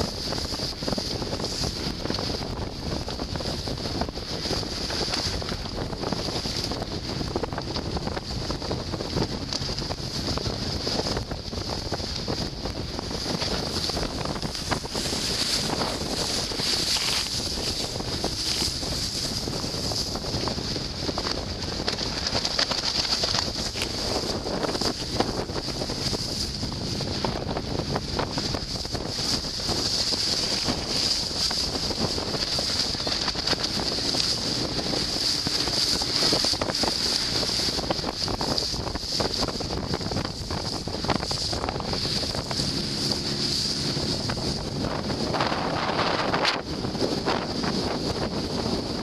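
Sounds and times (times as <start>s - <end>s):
water splashing along hull: 0.0s - 49.0s
wind buffeting microphone: 0.0s - 49.0s.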